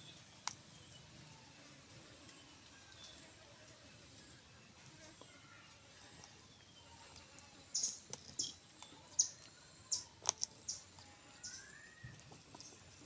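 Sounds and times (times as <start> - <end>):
bird chirping: 5.3 - 13.0
steady high-pitched whine: 7.7 - 13.0.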